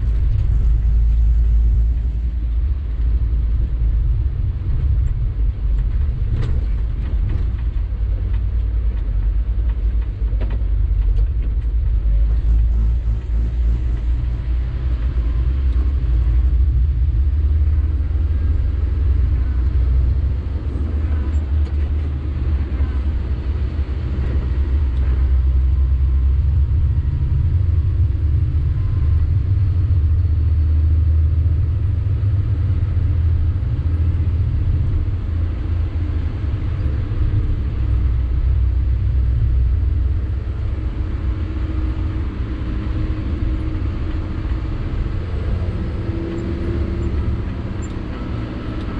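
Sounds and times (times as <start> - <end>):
diesel truck engine rumbling: 0.0 - 48.9.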